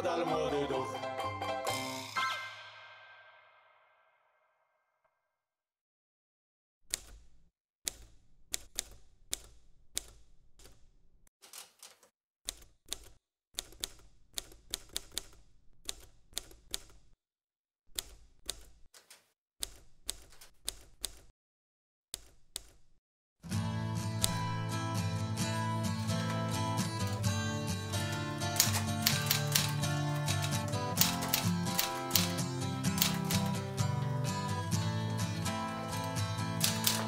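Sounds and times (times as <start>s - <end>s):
typewriter typing: 11.4s - 17.0s, 17.9s - 21.3s, 27.9s - 34.0s, 35.8s - 37.0s.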